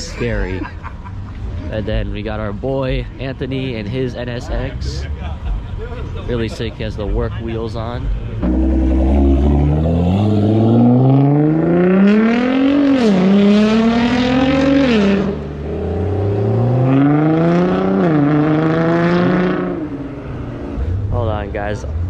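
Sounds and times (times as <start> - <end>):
car engine accelerating hard: 8.1 - 21.1.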